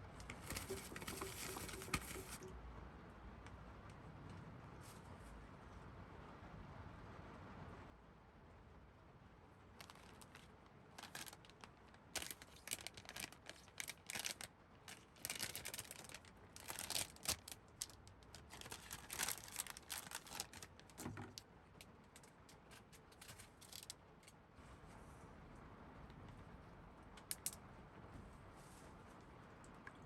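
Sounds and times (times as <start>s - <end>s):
rustling and crinkling: 0.0s - 2.5s, 9.7s - 25.4s.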